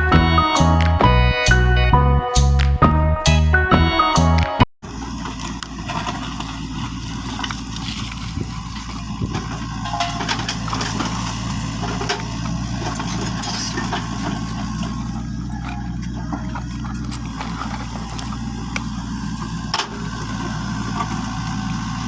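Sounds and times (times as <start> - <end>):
small tractor motor idling: 4.9 - 22.0.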